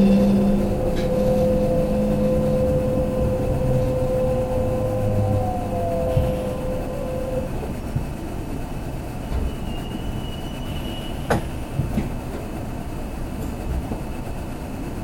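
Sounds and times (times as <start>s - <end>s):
high wheel squeal: 0.0s - 7.8s, 9.3s - 11.8s
falling whine: 0.0s - 8.8s
train wheels rumbling on track: 0.0s - 15.0s.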